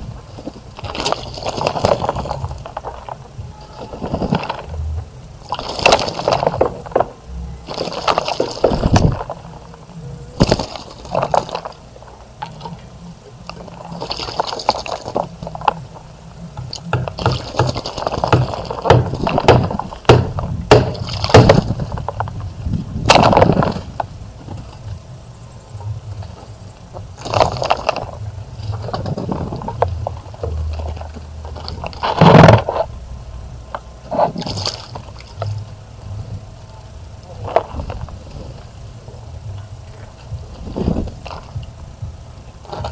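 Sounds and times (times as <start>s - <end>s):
low rumble: 0.0s - 10.5s, 21.6s - 42.9s
water splashing in bird bath: 0.0s - 24.8s, 25.9s - 42.9s.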